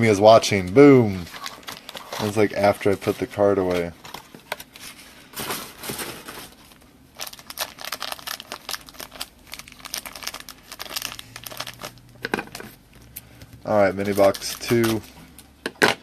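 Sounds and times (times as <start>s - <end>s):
plastic wrapping crinkling and tearing: 1.2s - 5.0s, 5.7s - 15.4s.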